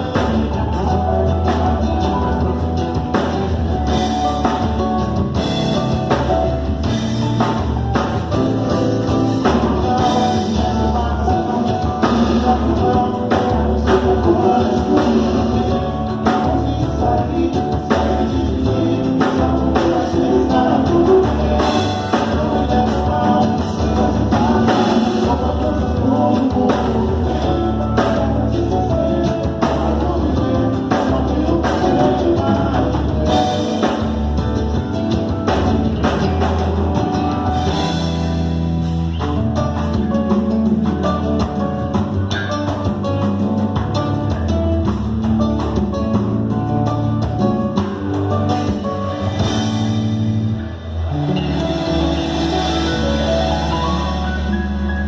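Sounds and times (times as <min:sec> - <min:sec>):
person singing: 0:00.0 - 0:38.2
drum kit playing: 0:00.0 - 0:55.0
electric guitar playing: 0:00.0 - 0:55.0.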